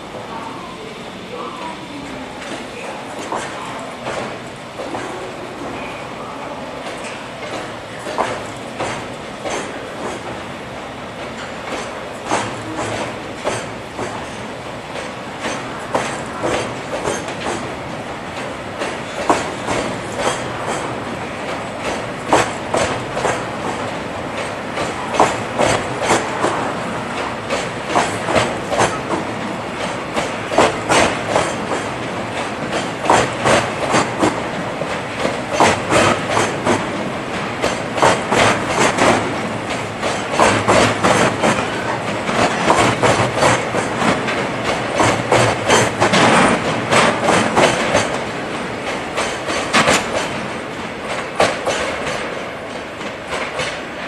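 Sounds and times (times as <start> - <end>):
freight train rumble: 0.0 - 54.0
wheels clicking over rail joints: 6.8 - 10.4, 11.2 - 26.6, 27.2 - 54.0.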